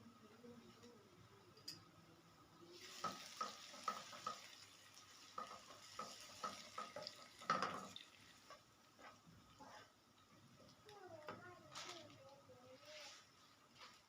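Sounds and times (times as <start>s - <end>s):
food sizzling in a pan: 2.2s - 14.0s
spoon scraping a pan: 5.3s - 8.0s.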